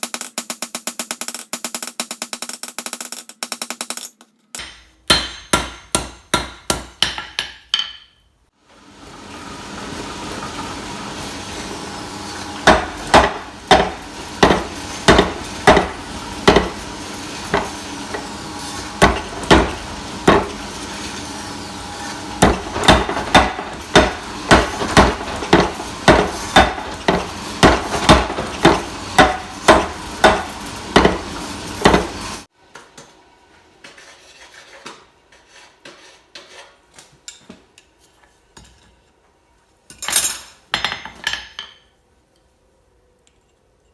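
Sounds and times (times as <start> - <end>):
hammer striking steel on anvil: 3.7 - 8.3, 12.6 - 21.2, 21.9 - 32.2.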